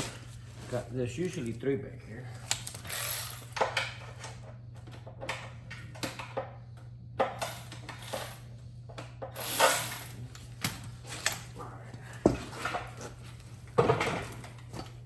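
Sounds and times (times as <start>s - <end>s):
metal tools clinking: 0.0s - 1.6s
steady low hum: 0.0s - 15.0s.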